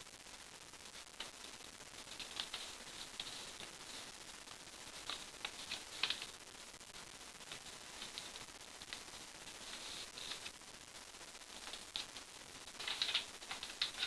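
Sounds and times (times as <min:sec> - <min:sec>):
paper crinkling and rustling: 0:02.1 - 0:04.1, 0:04.9 - 0:06.3, 0:09.5 - 0:10.6, 0:12.7 - 0:14.0.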